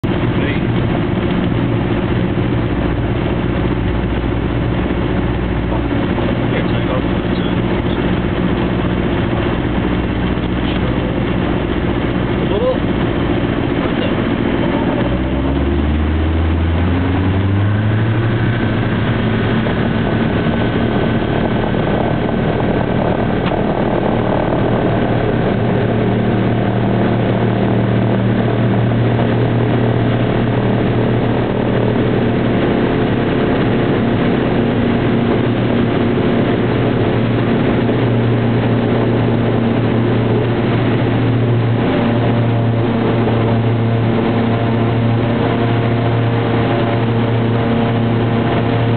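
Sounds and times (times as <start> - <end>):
airliner engines spooling up: 0.1 - 48.9.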